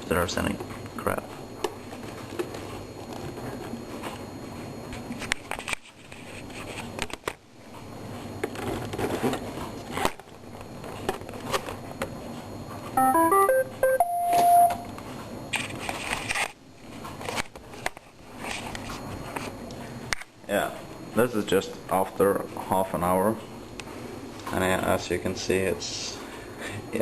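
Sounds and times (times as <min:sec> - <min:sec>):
rising electronic beeps: 0:13.0 - 0:14.8.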